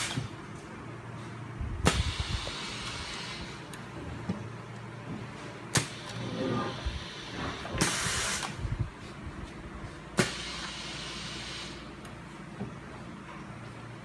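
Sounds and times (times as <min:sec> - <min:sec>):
machine low steady hum: 0:00.0 - 0:14.0
heat press sharp clack: 0:01.8 - 0:02.2, 0:05.7 - 0:06.2, 0:10.2 - 0:10.6
air hiss: 0:01.9 - 0:03.6, 0:05.8 - 0:08.6, 0:10.2 - 0:11.9.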